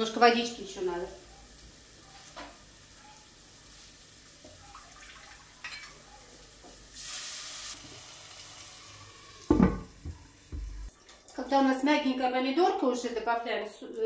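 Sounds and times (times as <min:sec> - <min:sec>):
tomatoes sizzling: 0:00.0 - 0:04.7, 0:05.4 - 0:12.4
hiss as pot lid comes off: 0:07.0 - 0:08.1
kitchenware knocks: 0:09.5 - 0:10.8.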